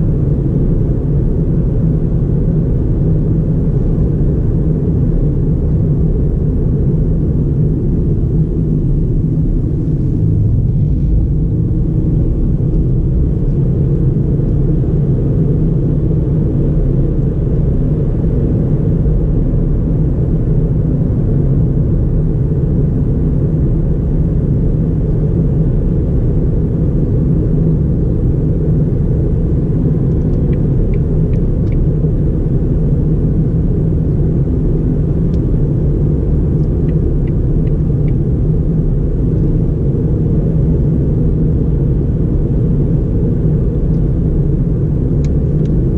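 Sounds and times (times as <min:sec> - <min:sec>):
road noise: 0:07.9 - 0:19.1
car engine cruising: 0:07.9 - 0:19.5.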